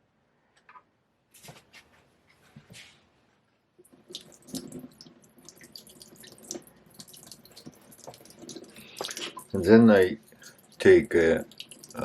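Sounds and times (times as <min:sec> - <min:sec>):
water dripping and splashing: 0:03.8 - 0:12.0.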